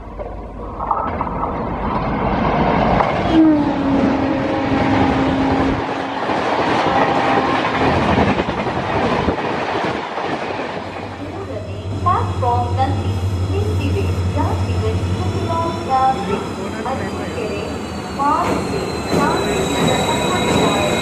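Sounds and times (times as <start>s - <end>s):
train wheels clattering on rails: 5.6s - 12.5s, 18.2s - 21.0s
steady low tone: 11.0s - 17.0s.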